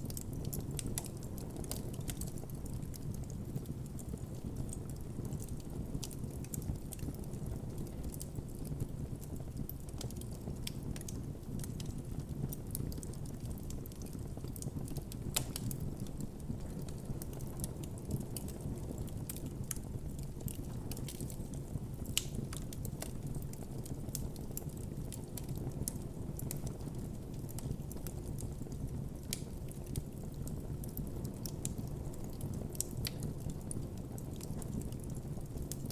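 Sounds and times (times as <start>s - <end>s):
campfire crackling and popping: 0.0s - 35.9s.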